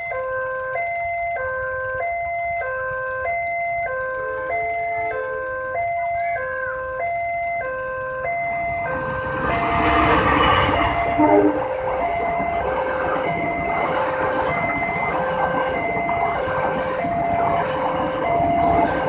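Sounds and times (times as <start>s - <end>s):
level-crossing two-tone alarm: 0.0s - 19.0s
train rumbling: 3.8s - 19.0s.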